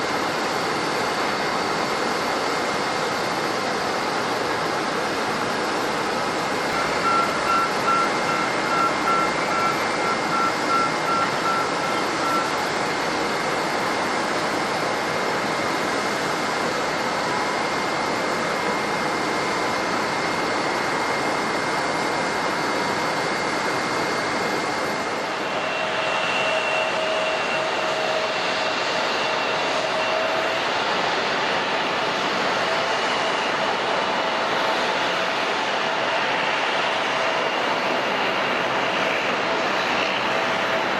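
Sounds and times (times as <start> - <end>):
jet engines roaring with whine: 0.0 - 40.9
reversing beeper beeping: 6.7 - 12.5.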